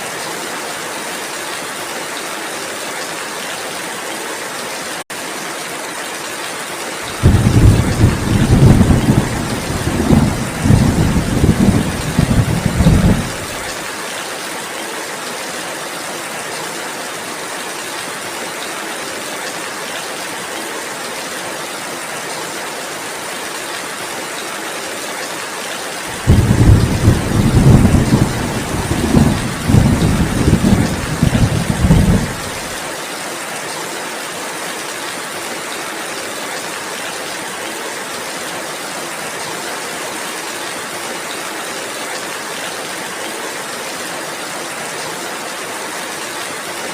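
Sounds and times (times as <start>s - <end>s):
steady rain falling: 0.0s - 46.9s
low rumble of thunder: 7.2s - 13.7s, 26.2s - 32.7s.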